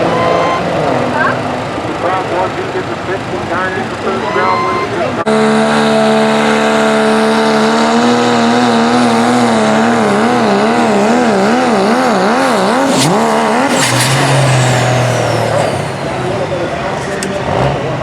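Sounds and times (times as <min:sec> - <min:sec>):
diesel engine revving under load: 0:05.2 - 0:18.0
sharp cracks: 0:10.7 - 0:17.4.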